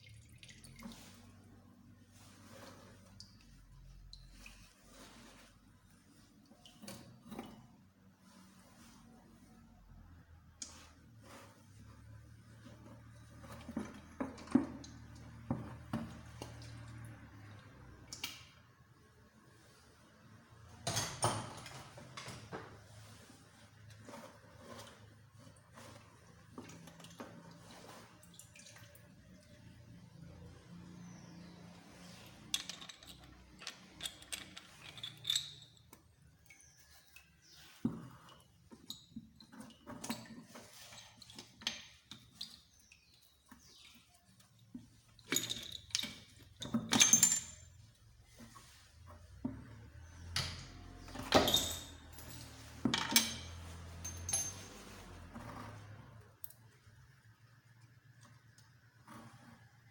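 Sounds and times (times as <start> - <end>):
metal parts and tools clinking: 32.2 - 36.0, 45.2 - 47.9, 50.5 - 55.3.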